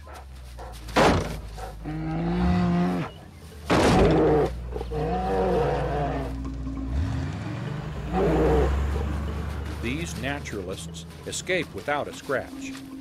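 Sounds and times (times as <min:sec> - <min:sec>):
bear bellowing and growling: 0:00.0 - 0:11.5
steady low drone: 0:01.4 - 0:13.0.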